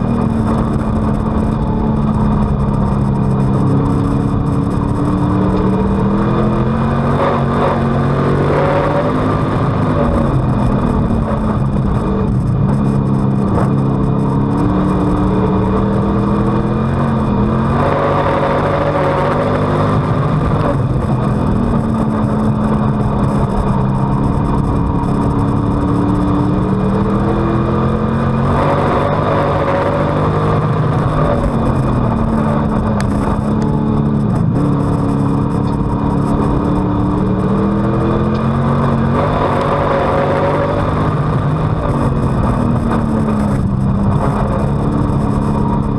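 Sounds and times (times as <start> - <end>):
race car engine accelerating: 0.0 - 45.9.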